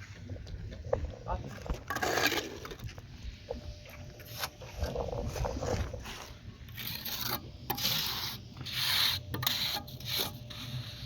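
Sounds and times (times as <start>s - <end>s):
rough scraping strokes: 1.9s - 3.0s, 4.2s - 11.0s.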